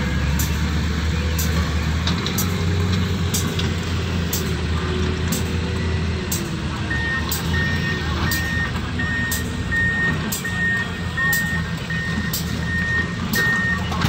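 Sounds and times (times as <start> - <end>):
diesel engine running: 0.0 - 14.0
backup alarm beeping: 5.6 - 13.9.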